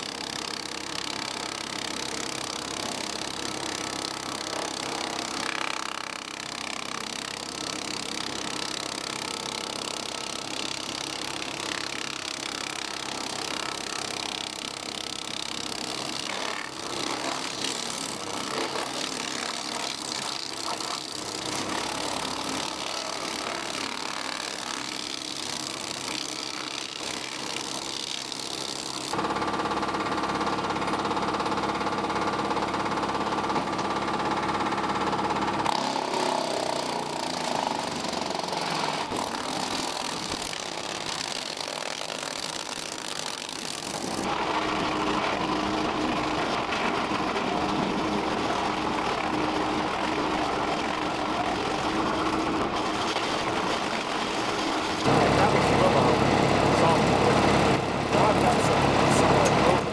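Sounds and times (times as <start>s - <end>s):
wood chipper chewing wood: 0.0s - 30.0s, 30.8s - 59.9s
tractor diesel engine under load: 44.4s - 59.9s.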